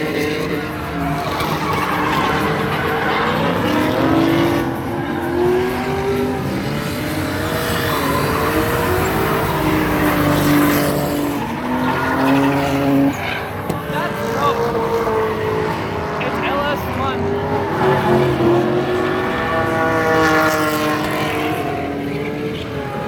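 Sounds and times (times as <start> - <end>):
tyres squealing: 0.0 - 19.6
car engines revving at limiter: 0.0 - 23.0.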